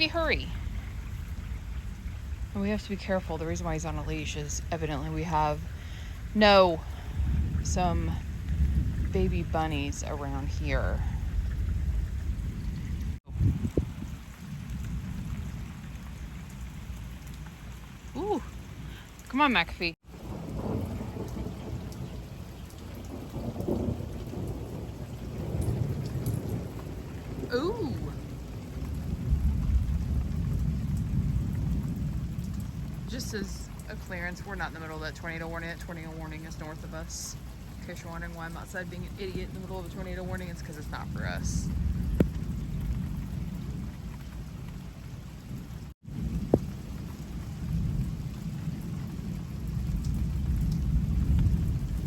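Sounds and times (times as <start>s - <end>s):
steady low rumble: 0.0s - 17.3s
heavy rain pouring: 0.0s - 52.0s
thunder rumbling: 0.0s - 52.0s.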